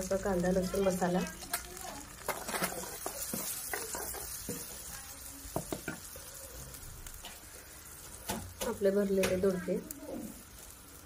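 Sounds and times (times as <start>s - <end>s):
masala sizzling in hot oil: 0.0s - 11.0s
metal spoon clinking against pan: 0.6s - 4.8s.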